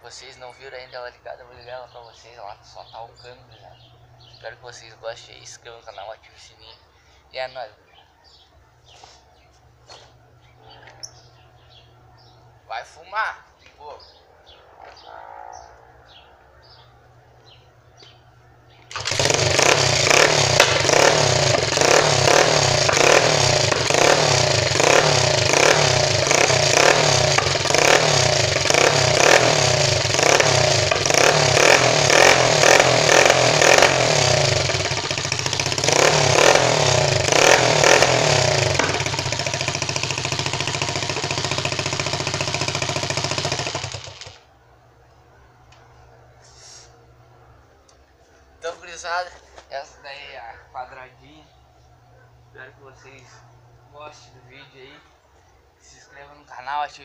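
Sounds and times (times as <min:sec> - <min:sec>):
motorcycle engine revving: 0:18.8 - 0:44.5.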